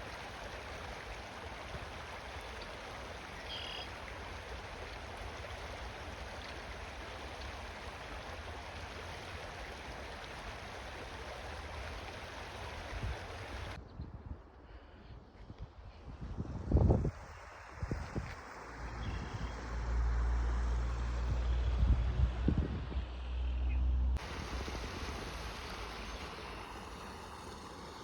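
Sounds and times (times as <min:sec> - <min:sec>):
stream water rushing: 0:00.0 - 0:13.8, 0:24.2 - 0:28.0
wind buffeting microphone: 0:16.0 - 0:18.4, 0:21.3 - 0:23.1.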